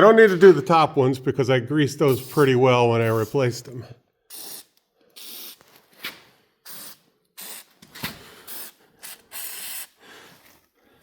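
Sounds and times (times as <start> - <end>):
aerosol spray hissing: 4.3 - 5.6, 6.7 - 7.7, 8.5 - 10.0.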